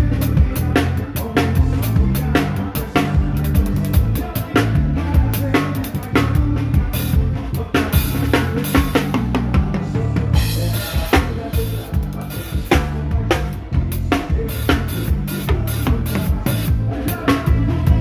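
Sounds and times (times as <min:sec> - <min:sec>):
bass line: 0:00.0 - 0:18.0
drum kit beat: 0:00.0 - 0:18.0.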